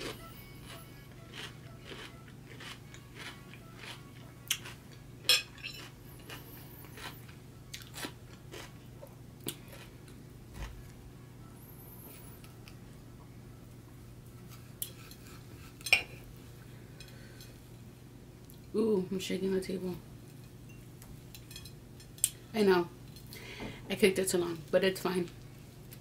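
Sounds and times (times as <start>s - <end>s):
crisp crunching of cucumber: 0.0s - 5.0s, 5.7s - 10.0s
knife and fork scraping a plate: 5.3s - 7.2s, 14.5s - 16.2s.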